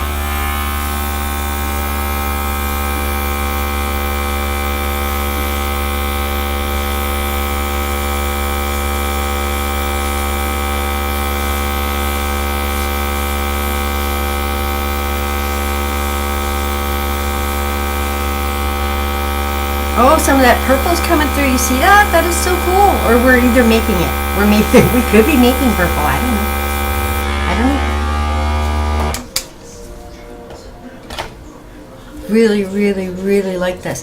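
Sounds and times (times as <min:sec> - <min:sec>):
electric air gun humming: 0:00.0 - 0:29.3.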